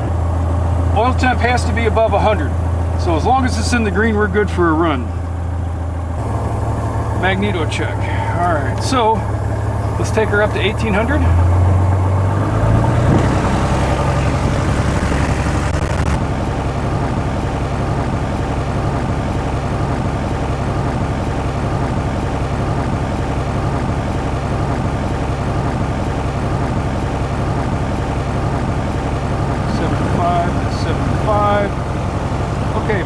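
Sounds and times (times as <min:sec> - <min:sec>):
piston engine and propeller running: 0:00.0 - 0:33.0.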